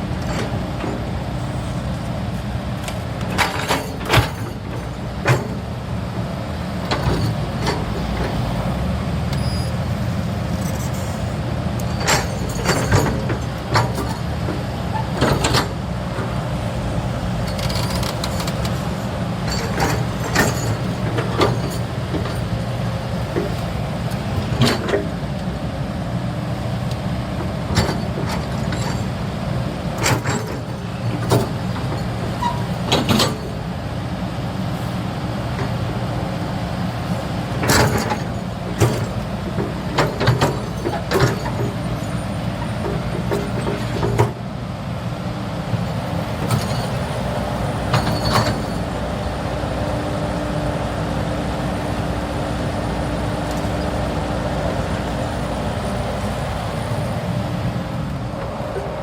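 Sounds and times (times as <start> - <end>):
excavator diesel engine running: 0.0 - 59.0
metallic clanks and knocks: 2.8 - 5.6, 12.0 - 14.2, 17.4 - 22.5, 30.0 - 33.5, 37.6 - 41.8.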